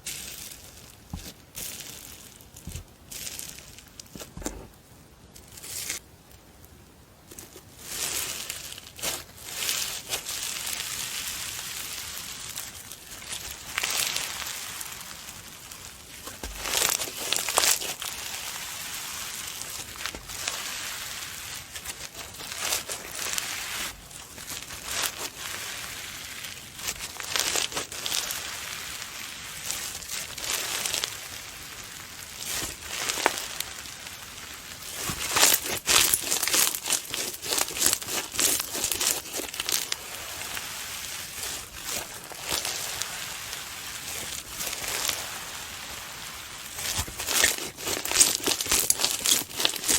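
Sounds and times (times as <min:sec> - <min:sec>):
slime crackling and popping: 0:07.9 - 0:49.9.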